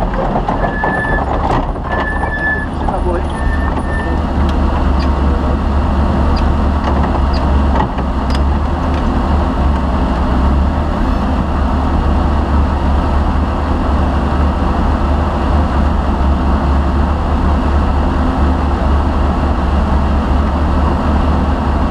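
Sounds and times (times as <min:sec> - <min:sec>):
car engine rumbling: 0:00.0 - 0:21.9.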